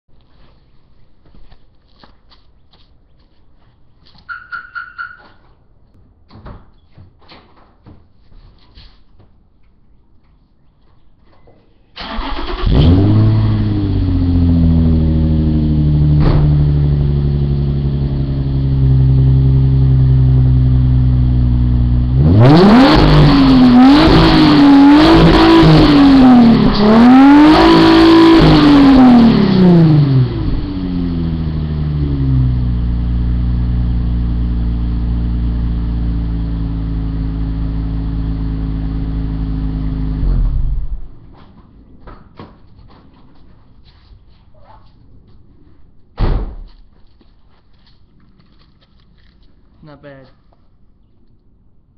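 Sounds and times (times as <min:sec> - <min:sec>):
car engine starting and idling: 0:11.9 - 0:41.3
car engine revving: 0:12.0 - 0:41.1.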